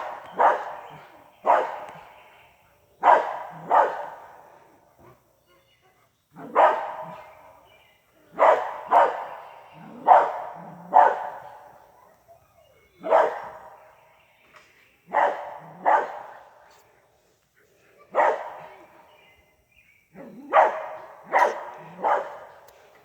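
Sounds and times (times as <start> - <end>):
dog barking: 0.0 - 2.1, 3.0 - 4.4, 6.4 - 7.4, 8.3 - 11.9, 13.0 - 13.8, 15.1 - 16.6, 18.1 - 18.9, 20.2 - 22.7.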